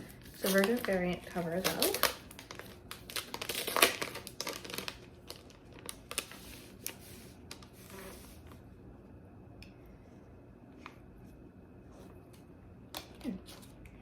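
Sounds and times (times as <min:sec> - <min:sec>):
packaging crinkling and rustling: 0:00.0 - 0:08.6.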